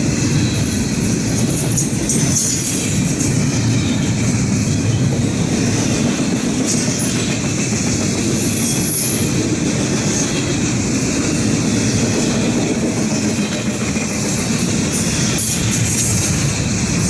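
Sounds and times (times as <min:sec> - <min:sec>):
freight train cars rolling: 0:00.0 - 0:17.0
wheel squeal: 0:08.4 - 0:09.4.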